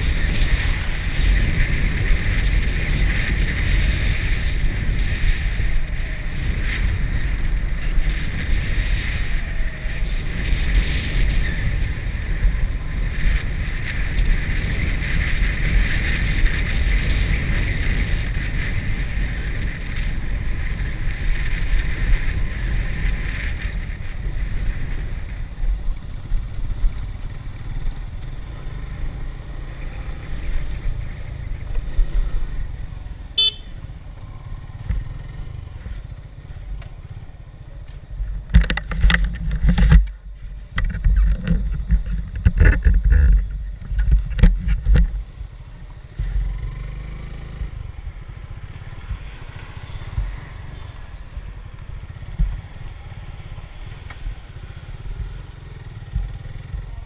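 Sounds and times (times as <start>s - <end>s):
wind on microphone: 0.0s - 37.4s, 38.1s - 46.6s, 47.3s - 55.4s
motorcycle engine rumble: 0.0s - 57.0s.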